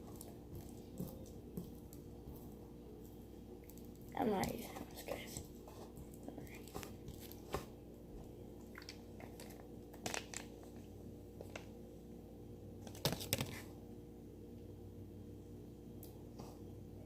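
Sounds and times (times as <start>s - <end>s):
low electrical hum: 0.0s - 17.0s
crinkling and clicking handling noises: 8.7s - 11.7s, 12.8s - 13.7s.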